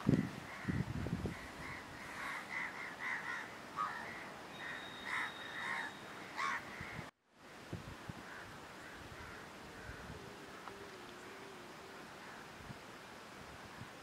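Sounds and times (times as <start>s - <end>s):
birds calling: 0.2s - 7.1s
faint thin whistle-like tone: 4.5s - 6.1s.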